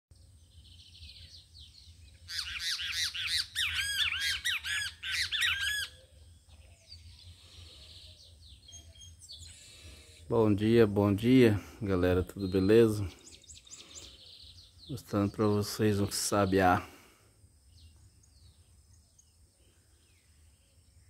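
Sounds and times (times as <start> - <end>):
faint bird calls: 2.1 - 10.5, 11.3 - 20.9
bird calling harsh notes: 2.3 - 6.1.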